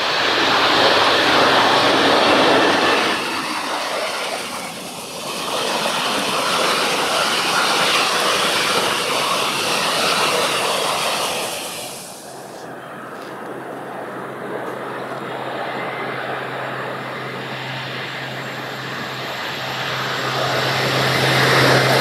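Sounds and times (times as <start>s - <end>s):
train wheels rolling on rails: 0.0s - 15.3s
electric locomotive passing: 0.0s - 22.0s.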